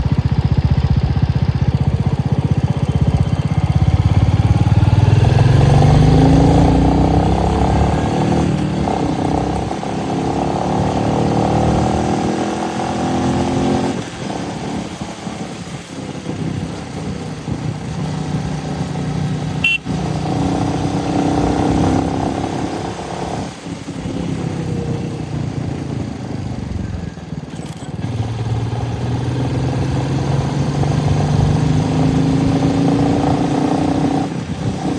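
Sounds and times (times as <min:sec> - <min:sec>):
motorcycle engine accelerating: 0:00.0 - 0:34.9
road and wind noise: 0:00.0 - 0:34.9.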